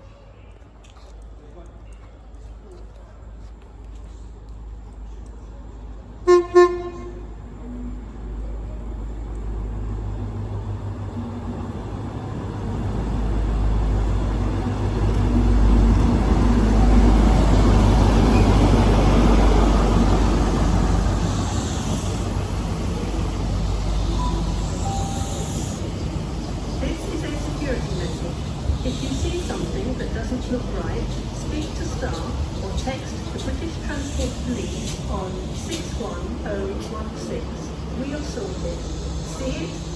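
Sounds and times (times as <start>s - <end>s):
train rumbling past: 2.0s - 39.9s
train horn blasts: 6.2s - 7.4s.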